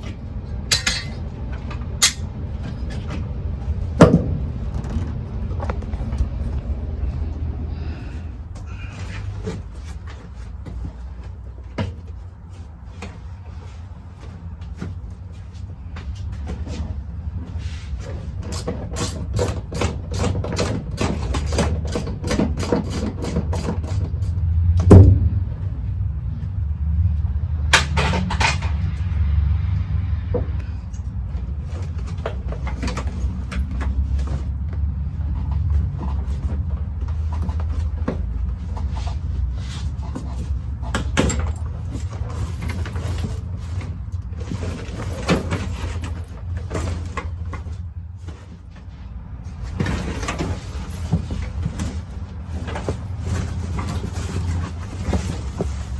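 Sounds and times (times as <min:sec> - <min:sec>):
car parts clicking and knocking: 0:00.0 - 0:06.7, 0:18.0 - 0:25.7, 0:27.6 - 0:29.1, 0:30.2 - 0:55.9.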